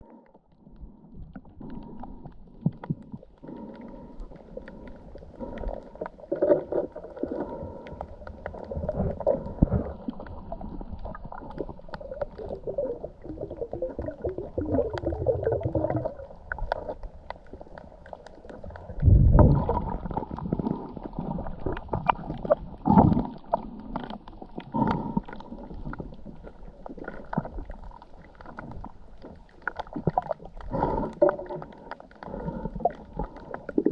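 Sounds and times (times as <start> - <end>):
water gurgling and sloshing: 0.0 - 33.9
low rumbling thumps: 19.0 - 19.8.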